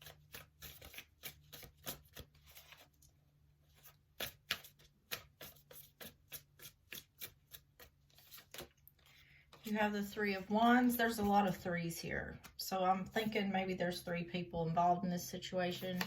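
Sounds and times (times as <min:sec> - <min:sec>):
cards being shuffled: 0:00.0 - 0:03.1, 0:03.7 - 0:09.8, 0:15.8 - 0:16.0.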